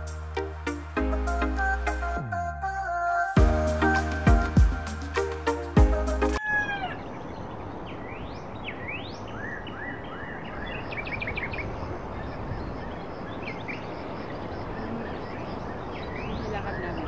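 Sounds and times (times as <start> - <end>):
outdoor background hiss: 7.0 - 17.0.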